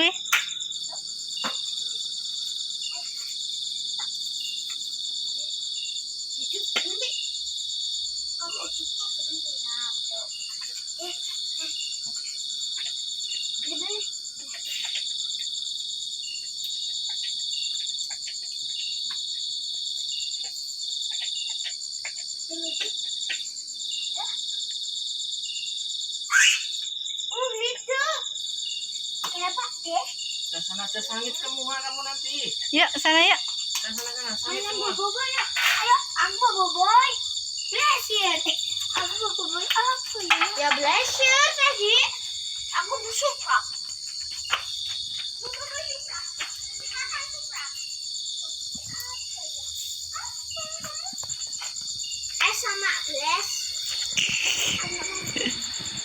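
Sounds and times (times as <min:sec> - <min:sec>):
cricket high continuous trill: 0:00.0 - 0:56.0
cricket lower broken trill: 0:50.0 - 0:56.0.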